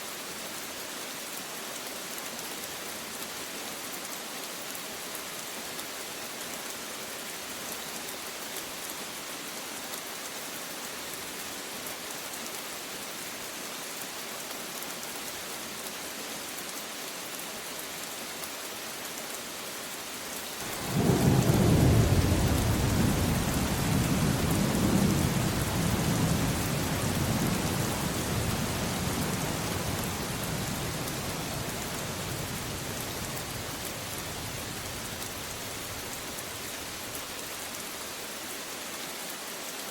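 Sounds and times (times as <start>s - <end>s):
steady rain falling: 0.0s - 39.9s
thunder rumbling: 20.6s - 36.7s.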